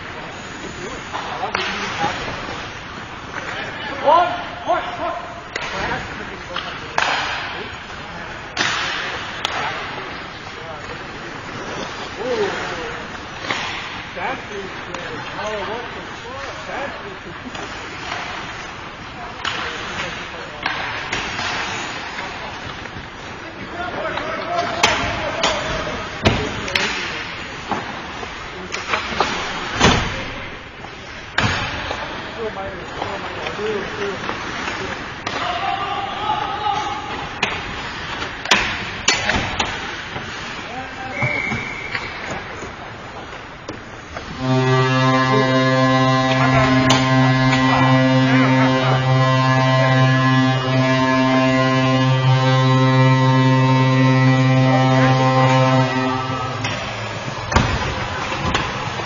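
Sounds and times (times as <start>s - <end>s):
ice rink horn blast: 0.1s - 7.8s, 8.5s - 30.0s, 31.4s - 42.4s, 44.0s - 59.0s
hockey stick hitting puck: 6.6s - 7.6s, 8.6s - 9.9s, 24.4s - 28.0s, 31.4s - 32.2s, 37.1s - 40.4s, 56.6s - 59.0s.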